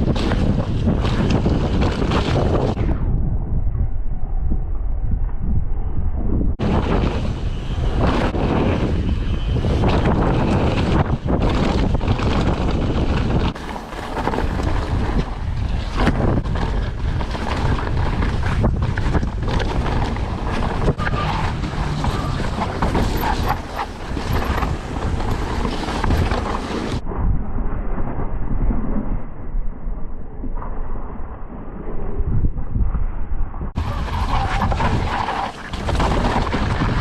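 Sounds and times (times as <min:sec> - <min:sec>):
bike tyre noise: 0:00.0 - 0:03.0, 0:06.6 - 0:27.0, 0:33.8 - 0:37.0
wind rush on microphone: 0:00.0 - 0:37.0
bike clattering over rocks: 0:11.4 - 0:27.0, 0:33.9 - 0:37.0.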